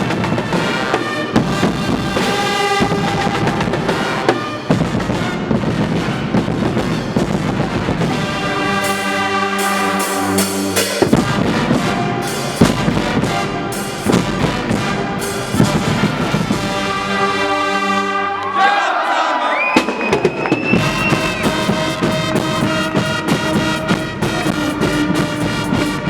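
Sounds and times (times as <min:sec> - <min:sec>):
drum beats: 0:00.0 - 0:18.6, 0:19.8 - 0:26.0
brass holding chords: 0:00.0 - 0:19.4, 0:20.8 - 0:26.0.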